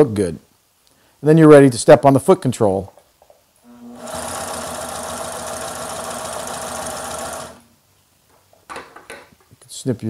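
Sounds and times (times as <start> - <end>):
sewing machine running: 3.7 - 7.7.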